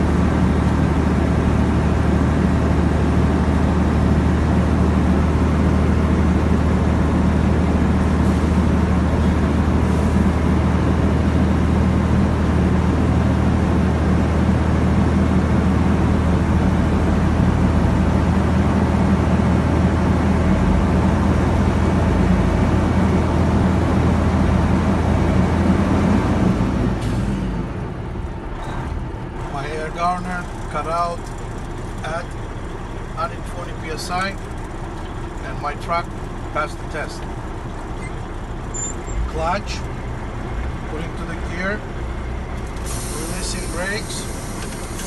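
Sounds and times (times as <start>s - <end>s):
diesel truck engine running: 0.0s - 45.0s
air compressor building pressure: 42.8s - 45.0s.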